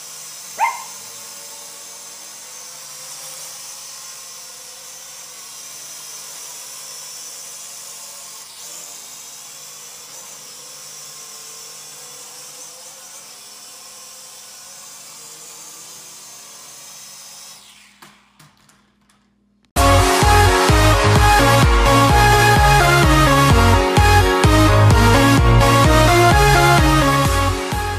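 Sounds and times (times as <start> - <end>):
toy drone whining: 0.0 - 27.9
electronic dance music: 19.8 - 27.9.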